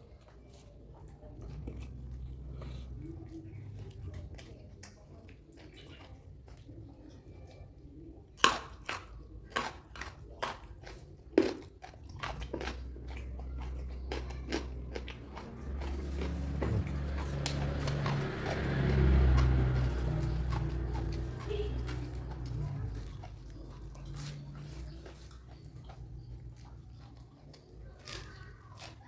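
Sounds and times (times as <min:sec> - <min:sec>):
chewing: 0:00.0 - 0:29.0
crunchy vegetable bites: 0:08.4 - 0:29.0.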